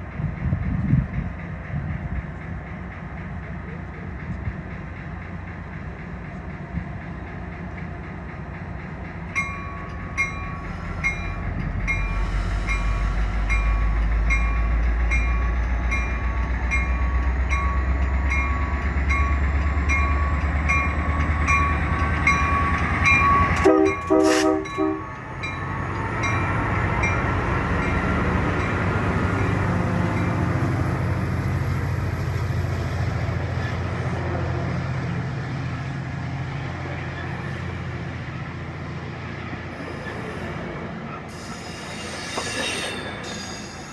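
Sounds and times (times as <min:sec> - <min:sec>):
diesel locomotive rumble: 0:00.0 - 0:43.9
crossing bells ringing: 0:09.3 - 0:30.6
train horn blasts: 0:23.6 - 0:25.2.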